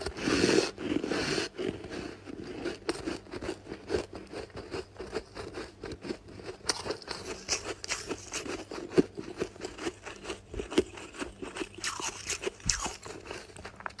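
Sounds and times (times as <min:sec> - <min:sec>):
icy crunches of chewing frost: 0:06.6 - 0:14.0.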